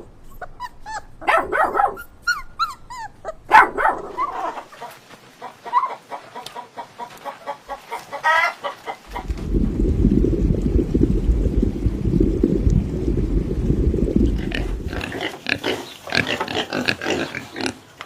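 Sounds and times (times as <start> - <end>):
dog whimpering and yipping: 0.2 - 4.6
dog whining: 0.2 - 4.6
dog barking: 1.2 - 2.1, 3.5 - 4.7.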